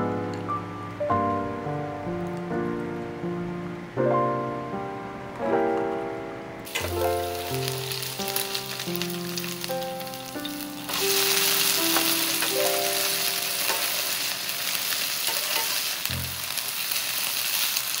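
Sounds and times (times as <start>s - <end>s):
light melody: 0.0s - 16.6s
pancake sizzling in oil: 6.7s - 18.0s
metal spatula scraping: 12.4s - 16.0s.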